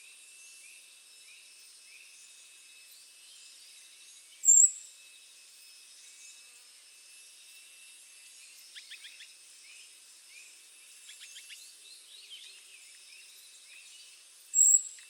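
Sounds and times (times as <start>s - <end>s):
faint insect hiss: 0.0s - 15.0s
bird chirping: 14.6s - 15.0s.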